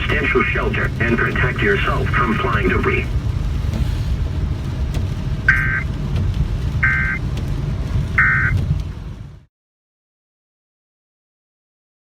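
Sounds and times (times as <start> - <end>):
steady low rumble: 0.0 - 9.5
harsh two-tone digital bursts: 5.5 - 5.8, 6.8 - 7.2, 8.2 - 8.6.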